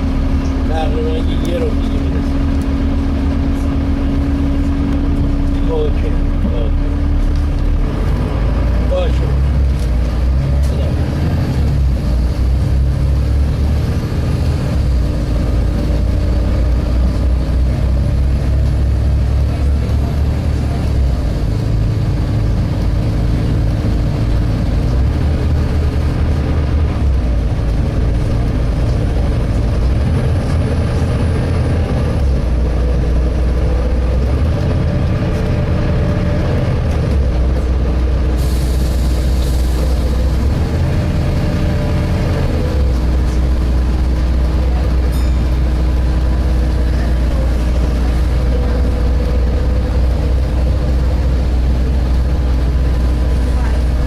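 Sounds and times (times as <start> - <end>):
bus diesel engine droning: 0.0 - 54.0
hiss: 38.4 - 40.1.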